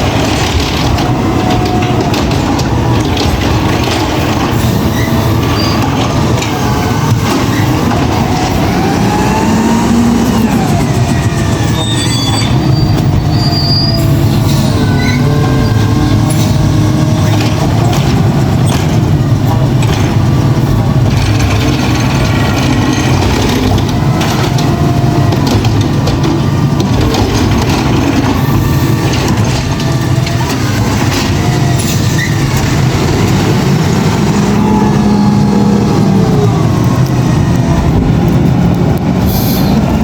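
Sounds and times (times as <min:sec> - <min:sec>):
garbage truck diesel engine: 0:00.0 - 0:40.0
squeals: 0:04.5 - 0:07.9, 0:10.2 - 0:17.4, 0:28.4 - 0:32.5.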